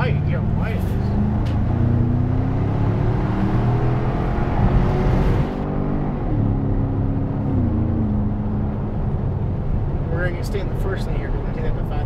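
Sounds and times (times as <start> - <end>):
car engine accelerating: 0.0 - 11.7.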